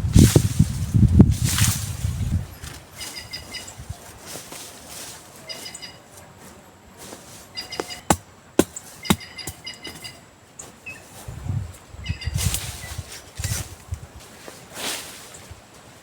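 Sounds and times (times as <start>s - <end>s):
bird chirping: 7.5s - 11.1s
sharp knocks: 7.8s - 10.0s.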